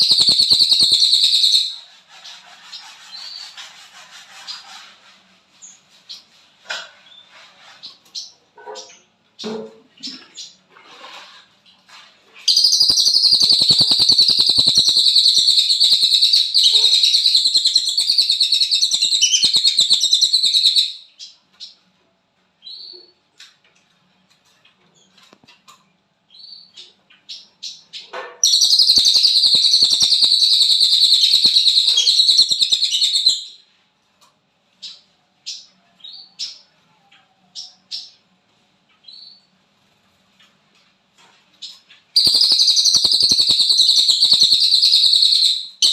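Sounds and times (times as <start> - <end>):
bird chirps: 0.0 - 3.5, 12.5 - 21.8, 26.3 - 33.6, 41.6 - 45.9
songbird buzzing trills: 42.2 - 45.5.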